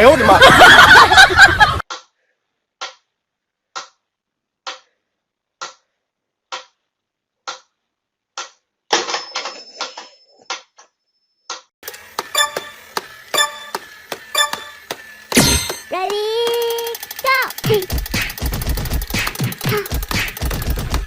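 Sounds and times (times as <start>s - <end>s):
thin high tone: 12.3s - 17.5s
sharp ticking: 15.7s - 20.9s.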